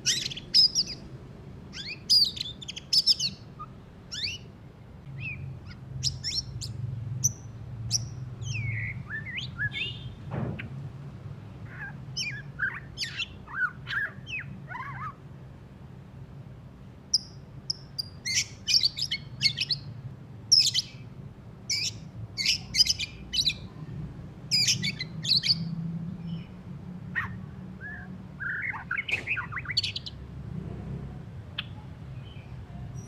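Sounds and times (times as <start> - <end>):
bird singing rapid chattering notes: 0.0 - 1.1, 1.7 - 4.5, 5.1 - 10.2, 11.7 - 15.2, 17.1 - 21.0, 21.7 - 23.7, 24.5 - 26.6, 27.2 - 30.3.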